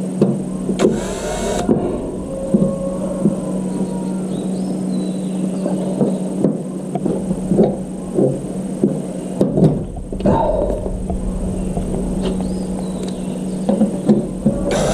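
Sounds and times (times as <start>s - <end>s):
electric mixer motor humming: 0.6s - 4.4s, 14.7s - 14.9s.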